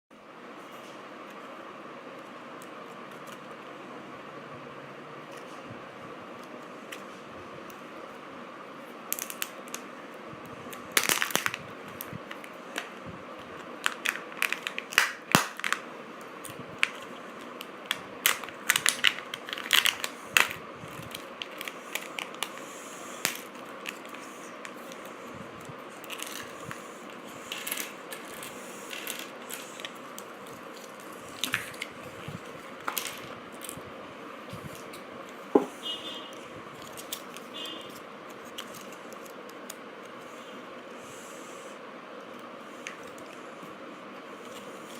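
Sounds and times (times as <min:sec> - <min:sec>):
plastic wrapper crinkling: 0:10.9 - 0:15.8, 0:16.4 - 0:33.8, 0:36.8 - 0:39.8.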